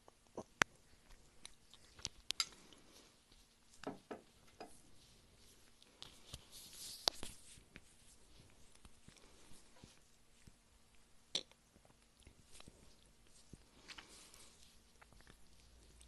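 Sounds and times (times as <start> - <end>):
close-miked chewing: 0.0 - 3.8, 4.7 - 16.0.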